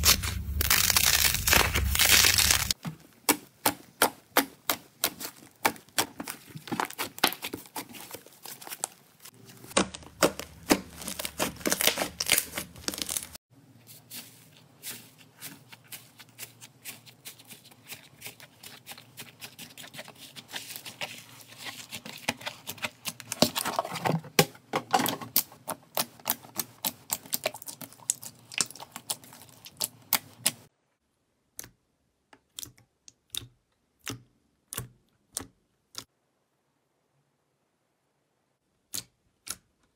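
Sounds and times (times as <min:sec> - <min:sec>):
slime clicking and crackling: 0:00.0 - 0:02.8, 0:09.8 - 0:13.4, 0:25.3 - 0:30.7.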